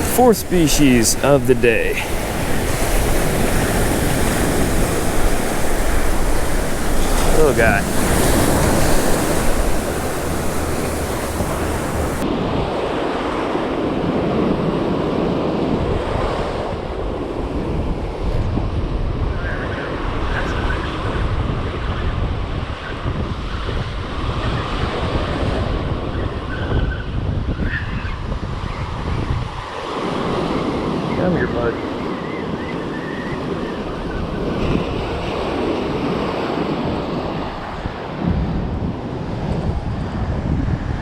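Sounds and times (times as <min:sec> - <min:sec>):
ocean surf washing on beach: 0:00.0 - 0:12.2
wind buffeting microphone: 0:00.0 - 0:12.2, 0:33.2 - 0:41.0.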